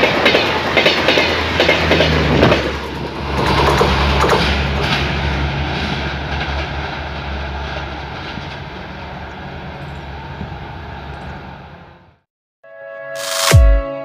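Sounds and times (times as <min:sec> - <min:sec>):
wheel clacks over rail joints: 0:00.0 - 0:08.8
train rumble: 0:00.0 - 0:12.2.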